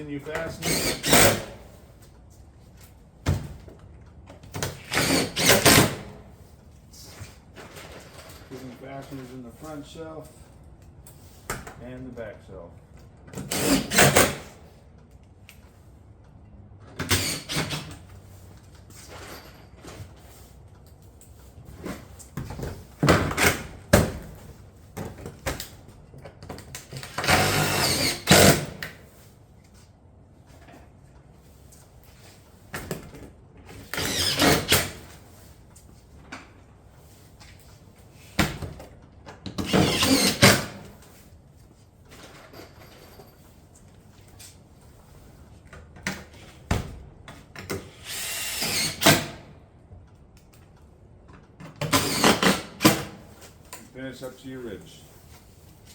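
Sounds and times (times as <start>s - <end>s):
power tool driving fasteners: 0.4s - 1.6s, 4.5s - 6.1s, 13.3s - 14.6s, 16.9s - 18.1s, 26.8s - 29.0s, 33.7s - 35.2s, 39.5s - 40.9s, 47.6s - 49.5s, 51.8s - 53.2s.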